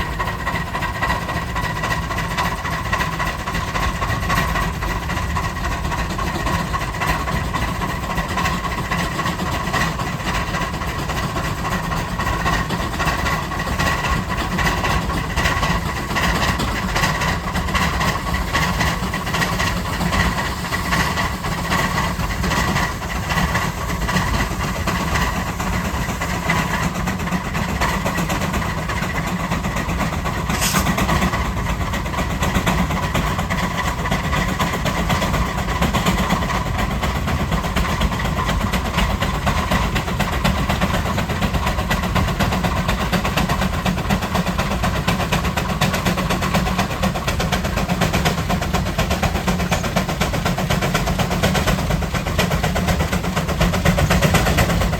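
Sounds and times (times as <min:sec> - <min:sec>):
steam engine running: 0:00.0 - 0:54.9.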